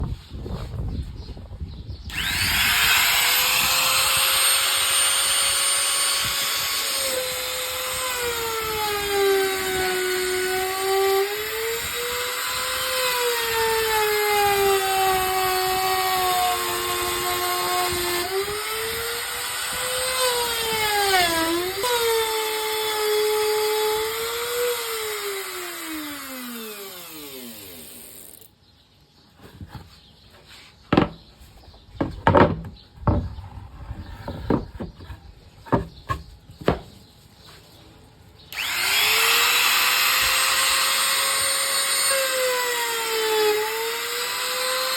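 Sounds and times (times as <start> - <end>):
electric router cutting wood: 2.1 - 28.5, 38.5 - 44.9.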